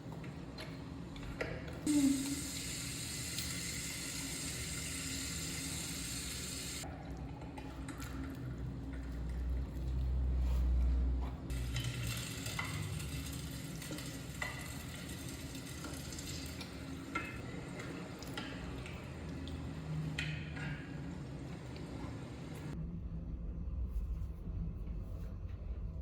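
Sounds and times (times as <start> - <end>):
food sizzling in frying pan: 11.5 - 16.9.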